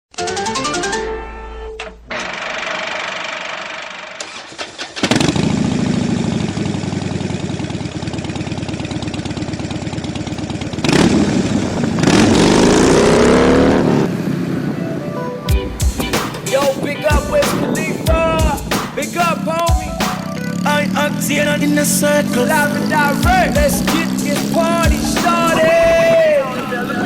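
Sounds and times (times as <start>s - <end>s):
vehicle engine running and revving: 4.9s - 14.8s, 20.3s - 27.0s.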